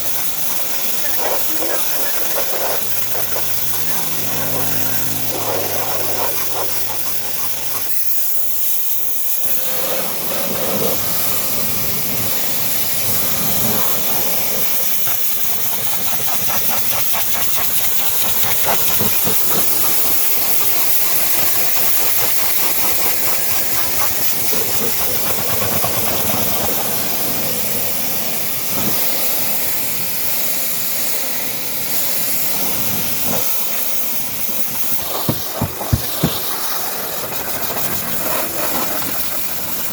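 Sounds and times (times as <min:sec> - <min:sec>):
machine hum: 0:00.0 - 0:08.0
high-pressure spray hissing: 0:00.0 - 0:39.9.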